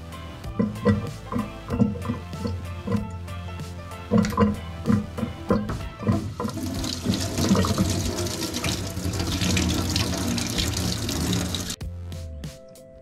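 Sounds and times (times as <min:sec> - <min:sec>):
tap water splashing into steel sink: 0:00.6 - 0:03.2, 0:04.1 - 0:11.8.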